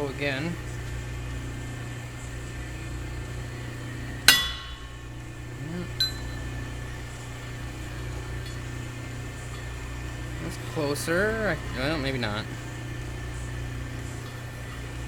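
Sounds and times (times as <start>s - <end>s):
low shop hum: 0.0s - 15.0s
hammer blow on steel tube: 4.3s - 6.5s.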